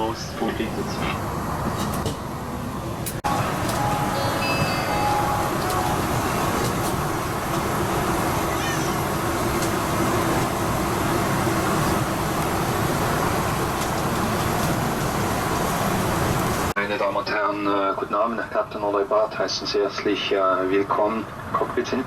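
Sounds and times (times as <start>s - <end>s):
vehicle rumble and hiss: 0.0s - 16.8s.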